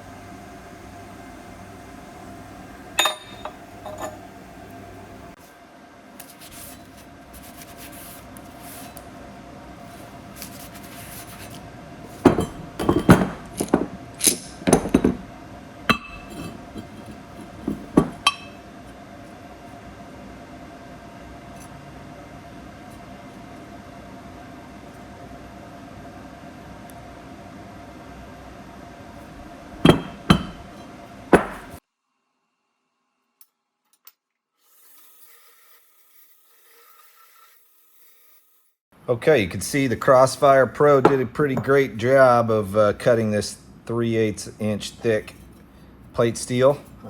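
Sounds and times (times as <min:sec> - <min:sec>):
steady machine hum: 0:00.0 - 0:31.8
steel plates clanking: 0:03.0 - 0:04.4, 0:15.9 - 0:17.1.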